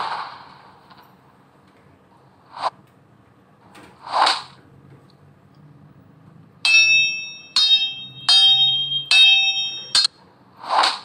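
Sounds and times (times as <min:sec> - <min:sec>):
sword blades clanging: 0:06.7 - 0:10.1.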